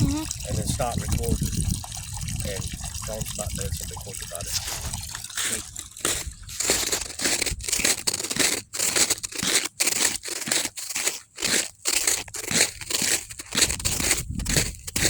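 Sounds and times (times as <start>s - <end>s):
footsteps crunching on icy snow: 4.6s - 15.0s.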